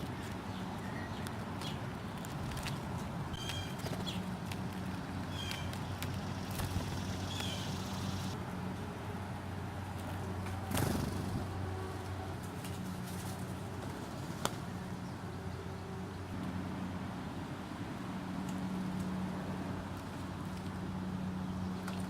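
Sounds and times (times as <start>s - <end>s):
low mechanical hum: 0.0s - 22.0s
bird chirp: 3.4s - 4.3s, 5.0s - 8.4s.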